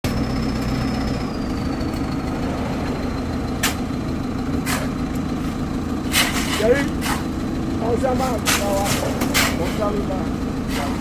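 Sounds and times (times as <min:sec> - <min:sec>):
diesel engine running: 0:00.0 - 0:11.0
short hissing or scraping: 0:06.1 - 0:07.3.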